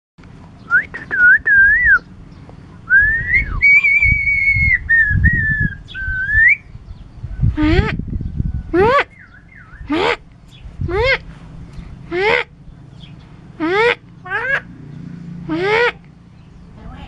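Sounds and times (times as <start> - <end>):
myna bird whistling: 0.6 - 2.1, 2.9 - 6.8, 9.1 - 9.9.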